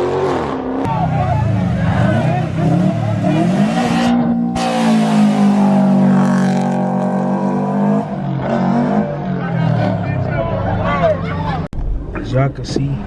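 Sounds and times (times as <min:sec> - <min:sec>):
car engine revving: 0:00.0 - 0:11.7.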